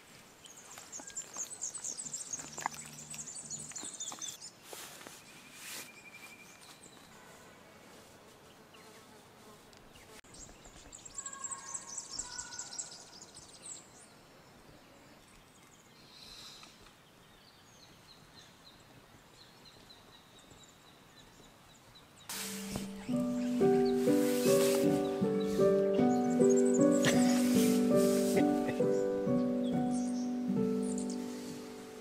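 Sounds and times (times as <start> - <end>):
faint bird calls: 22.3 - 32.0.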